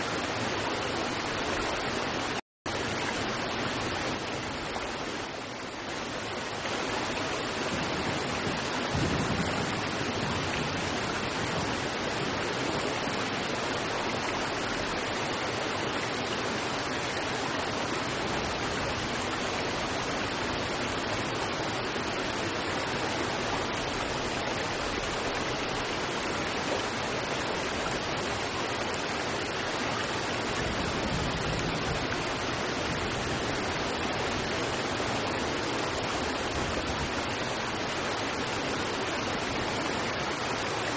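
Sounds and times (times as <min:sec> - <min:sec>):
water rushing over rocks: 0:00.0 - 0:40.9.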